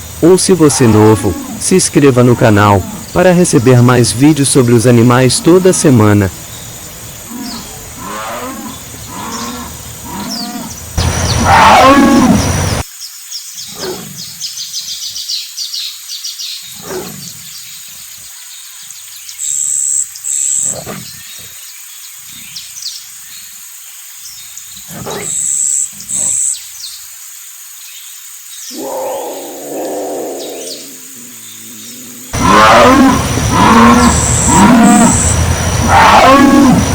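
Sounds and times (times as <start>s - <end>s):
jaguar roaring: 0.0s - 6.3s, 7.2s - 12.8s, 16.8s - 17.4s, 28.7s - 36.9s
jaguar grunting roars: 0.2s - 6.2s, 7.2s - 12.8s, 16.8s - 17.5s, 28.7s - 36.9s.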